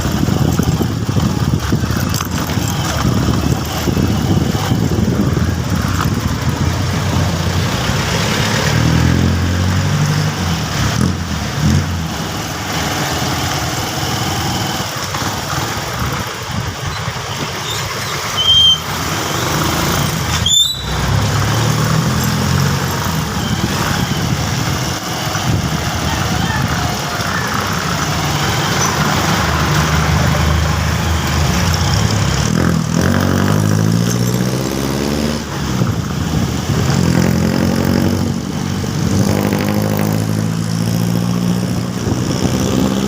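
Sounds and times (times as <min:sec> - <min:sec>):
motorcycle engine running: 0:00.0 - 0:43.0
road and wind noise: 0:00.0 - 0:43.0
brief high squeaks: 0:17.6 - 0:19.5, 0:20.3 - 0:21.1.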